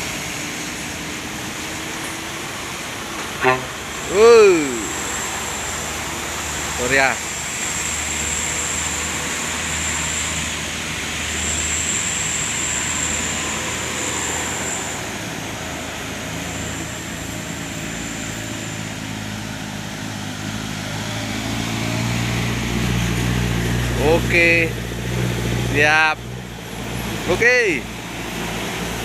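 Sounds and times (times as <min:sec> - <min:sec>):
trucks passing on road: 0:00.0 - 0:29.0
high-pitched whine: 0:03.4 - 0:06.4.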